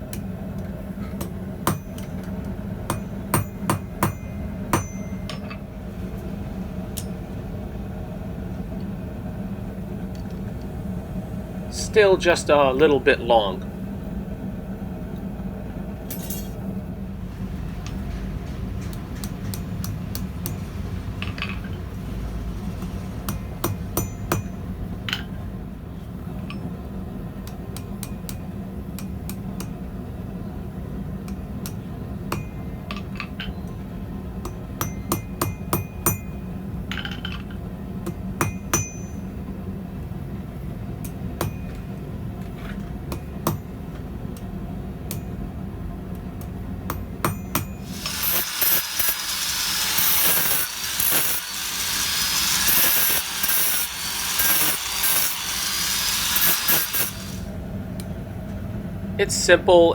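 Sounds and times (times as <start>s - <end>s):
steady low hum: 0.0s - 48.4s, 49.0s - 59.9s
hammer tapping on steel: 1.2s - 2.3s, 2.9s - 5.6s, 23.3s - 25.2s, 29.0s - 29.8s, 31.3s - 33.1s, 34.4s - 36.4s, 38.0s - 39.2s, 46.4s - 47.8s.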